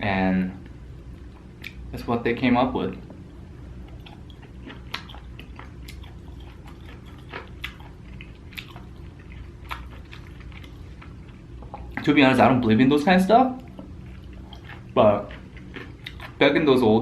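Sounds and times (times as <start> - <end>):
person chewing food: 1.1 - 1.9, 3.0 - 12.1, 13.6 - 16.4.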